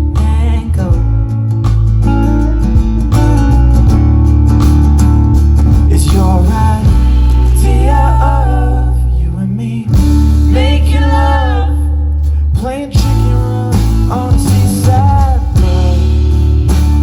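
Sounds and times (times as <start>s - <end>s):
guitar: 0.0s - 17.0s
steady bass: 0.0s - 17.0s
person singing: 5.9s - 16.6s.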